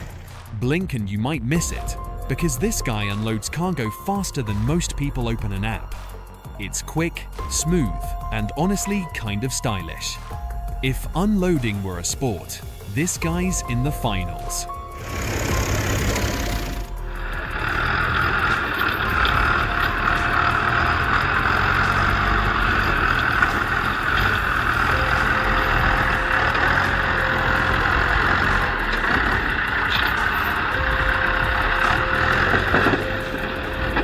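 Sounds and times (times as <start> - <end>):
heavy vehicle engine running: 0.0 - 0.6, 1.5 - 34.0
continuous whine: 10.4 - 34.0.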